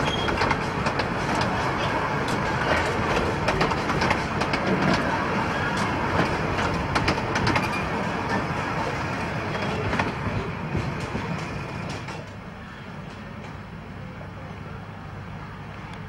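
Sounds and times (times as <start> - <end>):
train carriages rumbling past: 0.0 - 16.0
wheel clicks over rails: 5.8 - 7.7.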